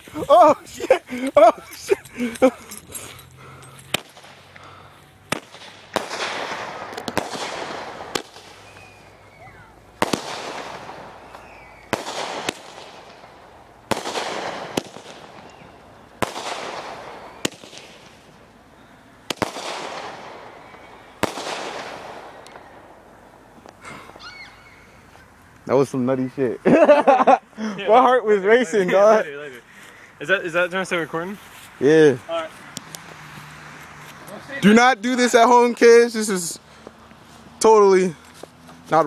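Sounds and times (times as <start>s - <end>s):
firework bangs and crackle: 3.9s - 4.6s, 5.3s - 18.6s, 19.2s - 24.2s.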